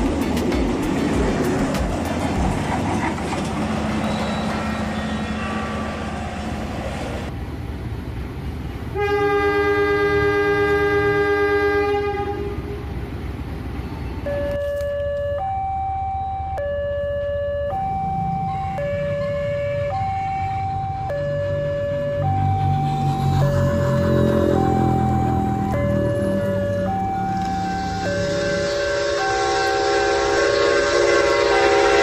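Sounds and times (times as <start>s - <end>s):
train running: 0.0s - 14.9s, 17.8s - 32.0s
train horn: 9.0s - 12.8s, 27.6s - 32.0s
two-tone hi-lo siren: 14.2s - 32.0s.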